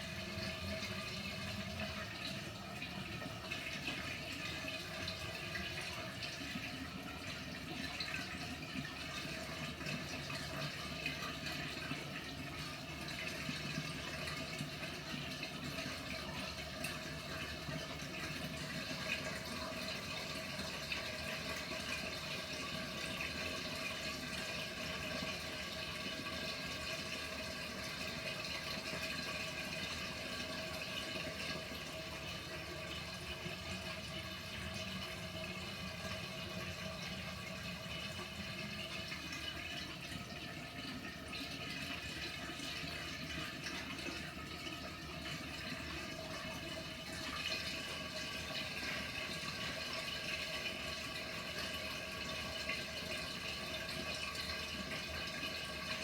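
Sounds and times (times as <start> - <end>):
faint steady hum: 0.0 - 56.0
water churning in washing machine: 0.0 - 56.0.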